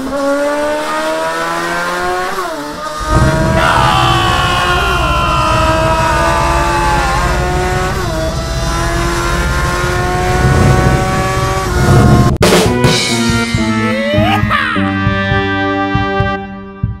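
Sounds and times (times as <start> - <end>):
car engine sound effect: 0.0 - 12.4
sharp break: 2.9 - 12.3.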